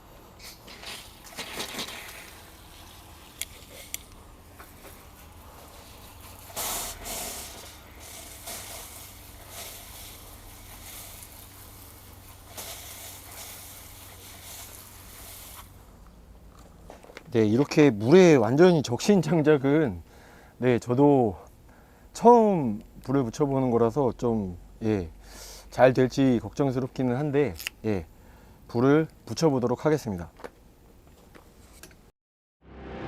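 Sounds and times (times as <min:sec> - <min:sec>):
water splashing over firewood: 0:05.9 - 0:15.8.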